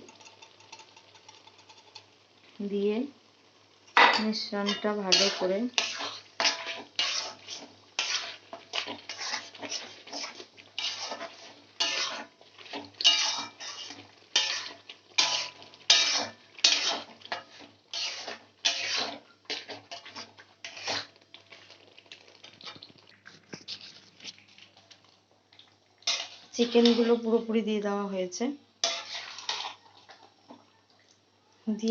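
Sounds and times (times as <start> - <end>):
metal spoon scraping a pan: 0.0 - 2.1, 4.0 - 21.1, 26.0 - 27.3, 28.8 - 29.9.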